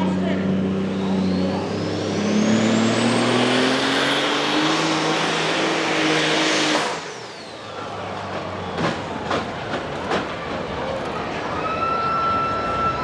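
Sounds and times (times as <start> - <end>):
high turbo whine: 0.0 - 8.8
tractor diesel engine at full power: 0.0 - 11.6.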